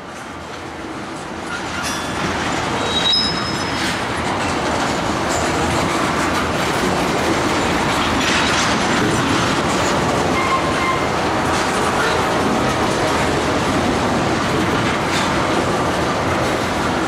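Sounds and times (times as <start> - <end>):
train wheels clattering on rails: 0.0 - 17.0
faint high squeals: 2.8 - 3.9.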